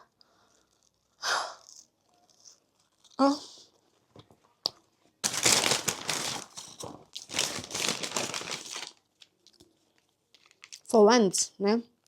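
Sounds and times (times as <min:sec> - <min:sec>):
paper bag crinkling: 0:05.2 - 0:09.0.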